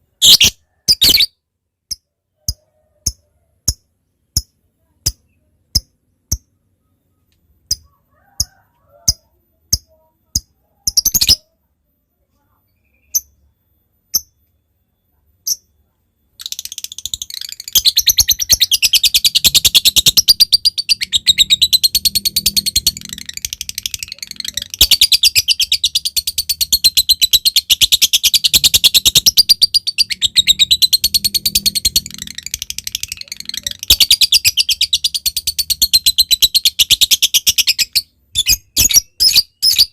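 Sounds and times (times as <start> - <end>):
lovebird ticking: 1.9 - 6.5, 7.6 - 11.0
lovebird warbling chatter: 16.4 - 39.9.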